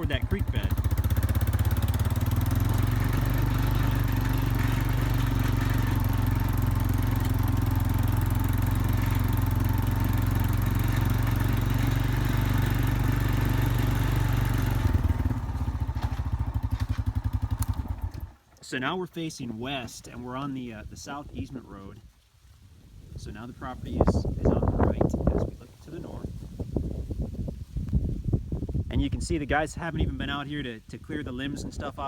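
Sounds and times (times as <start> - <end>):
atv engine running: 0.0 - 18.5.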